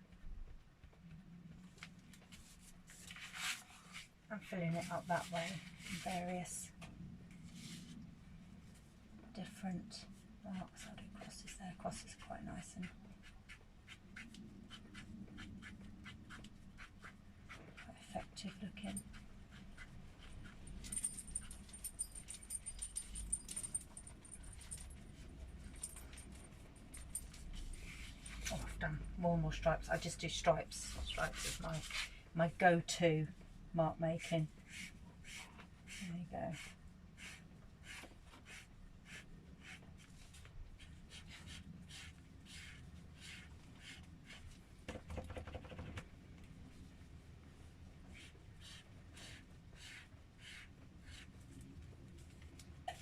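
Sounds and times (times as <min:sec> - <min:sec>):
marker pen scratching on paper: 0:12.1 - 0:20.7, 0:30.8 - 0:32.1, 0:34.2 - 0:44.6, 0:48.1 - 0:51.4.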